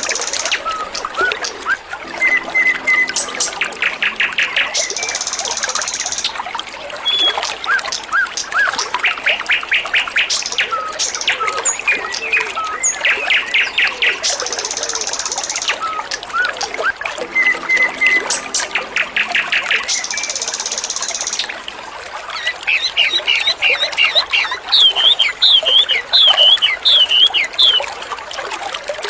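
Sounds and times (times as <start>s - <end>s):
water trickling: 0.0s - 29.0s
songbird chirping and whistling: 22.7s - 27.9s.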